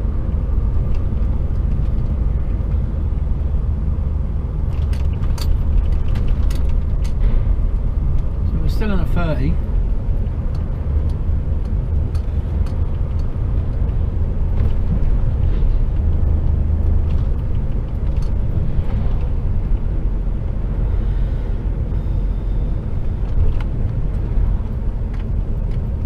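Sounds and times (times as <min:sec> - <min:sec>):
road noise: 0:00.0 - 0:26.0
truck diesel engine rumble: 0:00.0 - 0:26.0
faint clicks and rattles: 0:04.6 - 0:07.4, 0:10.1 - 0:19.9.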